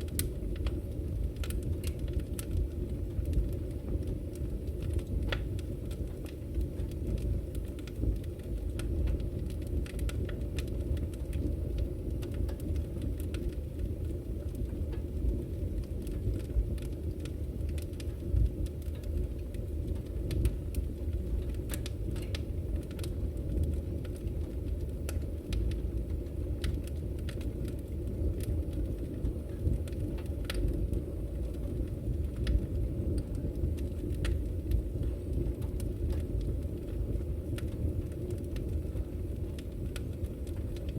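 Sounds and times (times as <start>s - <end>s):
fire rumbling in fireplace: 0.0s - 40.9s
firewood crackling and popping: 0.0s - 40.9s.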